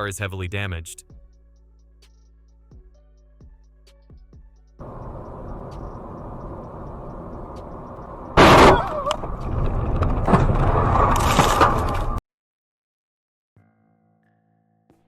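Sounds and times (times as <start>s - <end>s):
road and engine noise: 4.8s - 12.2s
wreck noise: 4.8s - 12.2s
loud crash impact: 8.4s - 12.2s.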